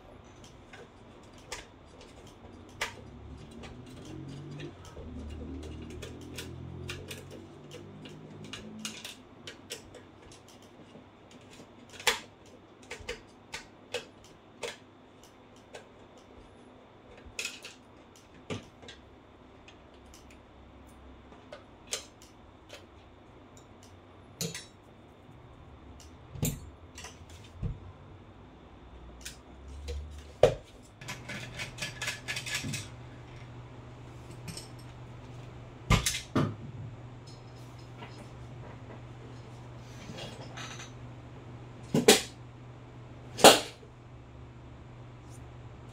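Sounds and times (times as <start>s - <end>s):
tools and small parts clattering: 0.3s - 14.9s, 17.1s - 20.3s, 24.4s - 24.8s, 29.2s - 33.6s, 34.2s - 35.0s, 39.9s - 41.1s.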